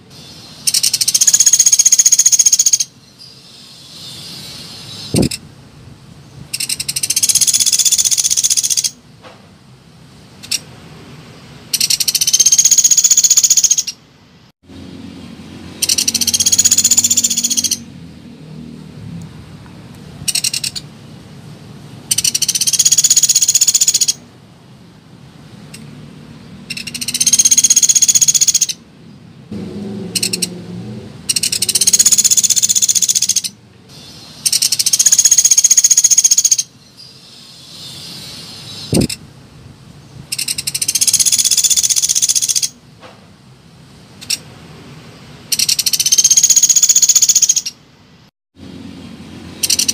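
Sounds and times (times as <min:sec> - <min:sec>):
woodpecker rattling trill: 0:00.6 - 0:03.0, 0:06.5 - 0:09.0, 0:11.7 - 0:14.0, 0:15.8 - 0:17.9, 0:20.3 - 0:20.8, 0:22.1 - 0:24.2, 0:26.7 - 0:28.8, 0:30.1 - 0:30.5, 0:31.3 - 0:33.6, 0:34.4 - 0:36.7, 0:40.3 - 0:42.8, 0:45.5 - 0:47.8, 0:49.6 - 0:49.9.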